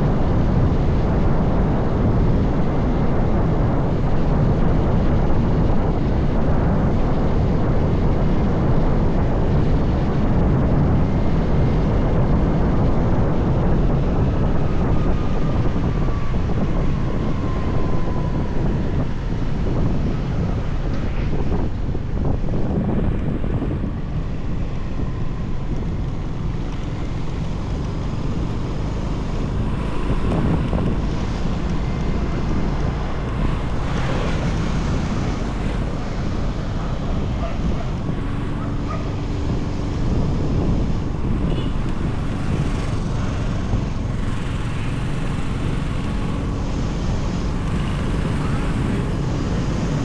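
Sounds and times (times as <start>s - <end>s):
road noise: 0.0s - 50.0s
wind buffeting microphone: 0.0s - 50.0s
motorbike engine: 20.6s - 50.0s.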